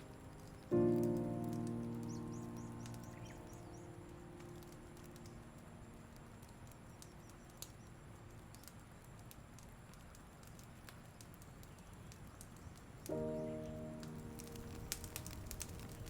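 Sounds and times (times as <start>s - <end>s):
soft background music chord: 0.0s - 9.0s, 13.0s - 16.0s
campfire crackling and popping: 0.0s - 16.0s.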